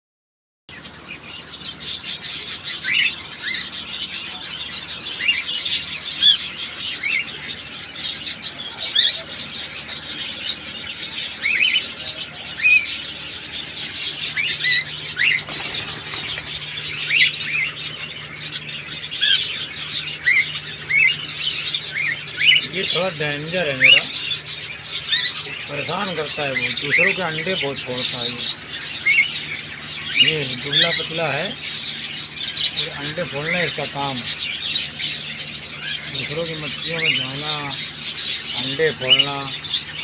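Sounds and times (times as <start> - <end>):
birds clicking and scrabbling: 0.7 - 40.0
cockatiels chirping: 0.7 - 40.0
wing flapping: 14.7 - 17.3.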